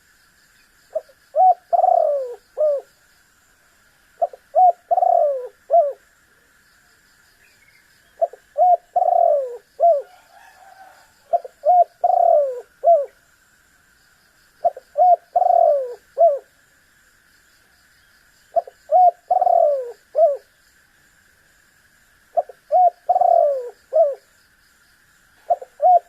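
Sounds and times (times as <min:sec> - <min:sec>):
dove cooing: 0:00.9 - 0:02.9, 0:04.2 - 0:06.0, 0:08.2 - 0:13.2, 0:14.6 - 0:16.5, 0:18.6 - 0:20.5, 0:22.3 - 0:24.3, 0:25.4 - 0:26.0.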